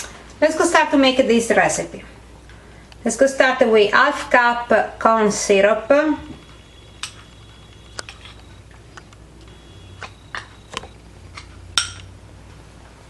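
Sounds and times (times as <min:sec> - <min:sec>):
kitchenware clicks and taps: 0:11.8 - 0:12.1.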